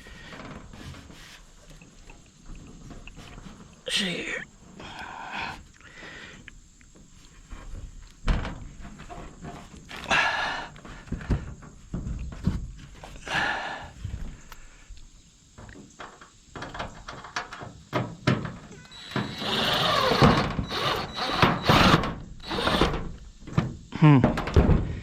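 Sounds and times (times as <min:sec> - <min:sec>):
power drill driving screw: 0:18.9 - 0:23.1.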